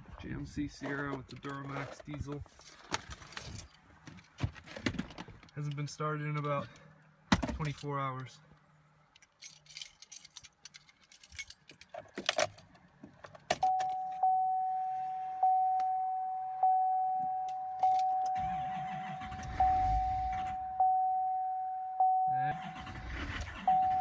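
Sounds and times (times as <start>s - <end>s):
keys jangling: 9.2s - 12.7s
car warning chime dinging: 13.6s - 22.8s, 23.5s - 24.0s.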